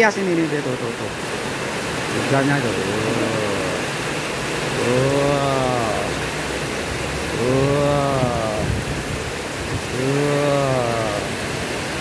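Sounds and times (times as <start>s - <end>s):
heavy rain pouring: 0.0s - 12.0s
low mooing call: 2.8s - 4.0s, 4.7s - 6.2s, 7.3s - 8.8s, 9.9s - 11.4s.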